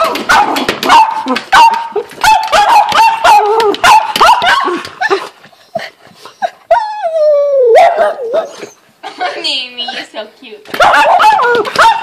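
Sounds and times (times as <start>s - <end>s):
small dog yapping: 0.0s - 4.8s, 7.7s - 8.7s, 10.8s - 12.0s.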